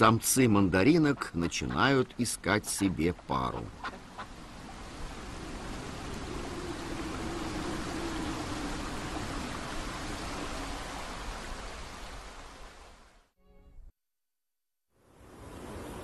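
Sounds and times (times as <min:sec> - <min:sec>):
stream water rushing and splashing: 0:00.0 - 0:13.3, 0:15.2 - 0:16.0.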